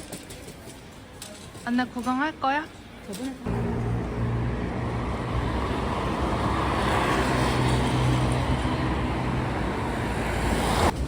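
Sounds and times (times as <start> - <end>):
low hum: 3.5 - 9.9
moving vehicle rumble and hiss: 3.5 - 11.0.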